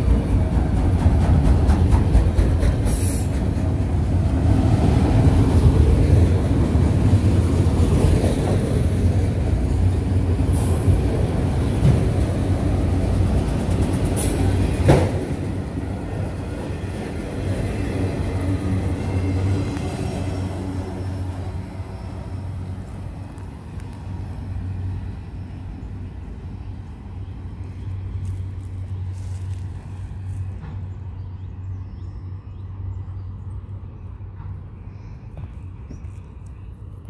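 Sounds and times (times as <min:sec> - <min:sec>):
train wheels rumbling on rail: 0:00.0 - 0:32.1, 0:32.7 - 0:36.0.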